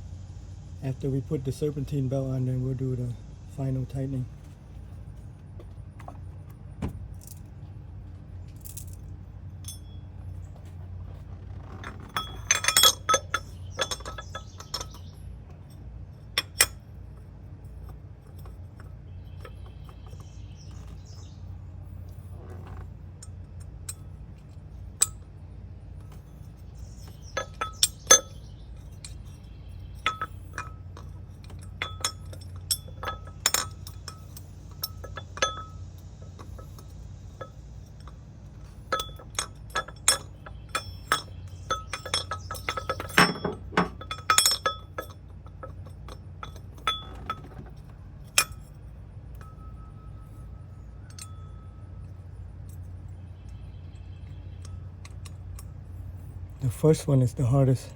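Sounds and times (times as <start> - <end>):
steady low hum: 0.0 - 57.9
metal clinks and taps: 8.5 - 10.7, 11.6 - 21.0, 26.0 - 56.4.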